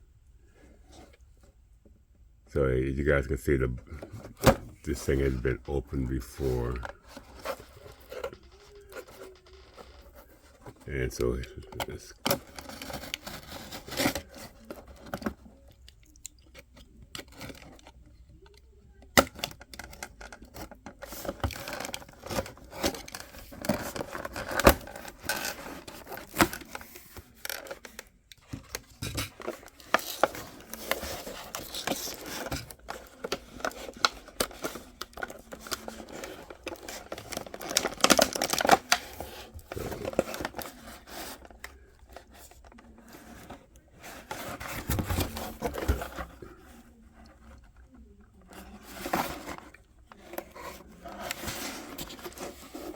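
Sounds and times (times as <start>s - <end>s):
packaging being torn open: 33.7s - 39.1s.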